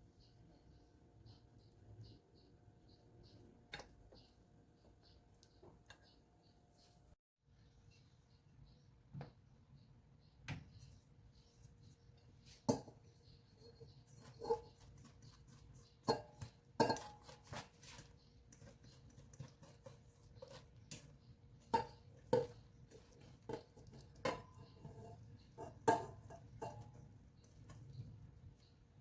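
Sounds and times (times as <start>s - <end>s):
utensils clinking on dishes: 16.0s - 17.7s, 21.7s - 27.1s.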